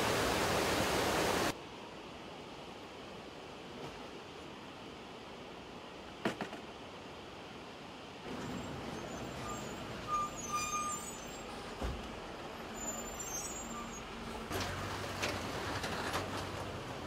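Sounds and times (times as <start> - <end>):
vehicle rumble: 8.2 - 17.0
brief high squeal: 8.4 - 11.6, 12.7 - 14.2.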